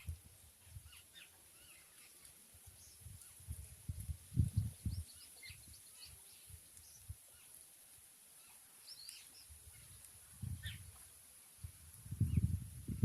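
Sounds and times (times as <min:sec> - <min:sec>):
small birds chirping: 0:00.0 - 0:03.8, 0:04.4 - 0:13.0.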